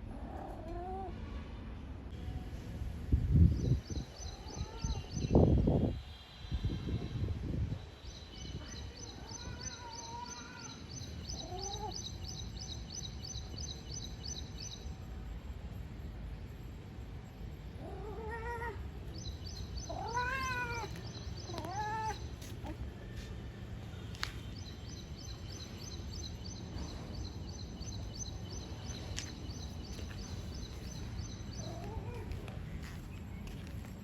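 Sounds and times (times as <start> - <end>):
cat meowing: 11.4 - 12.0, 17.8 - 18.8, 19.8 - 22.8.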